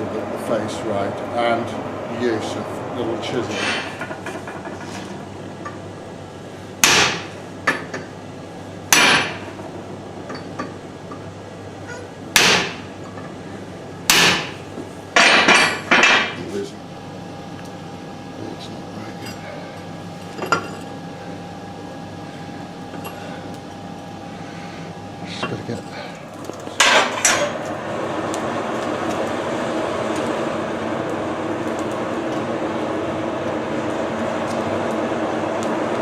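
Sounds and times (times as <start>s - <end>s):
hammer striking steel: 6.8s - 7.3s, 8.9s - 9.4s, 12.4s - 12.9s, 14.1s - 14.6s.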